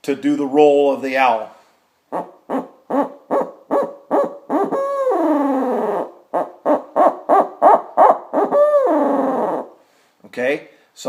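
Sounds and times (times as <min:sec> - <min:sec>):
owl hooter call: 0:02.1 - 0:09.8.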